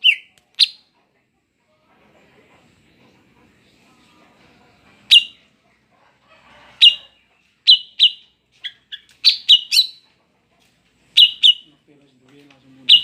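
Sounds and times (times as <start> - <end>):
bird chip calls: 0.0 - 0.9, 6.8 - 10.1, 11.1 - 11.7.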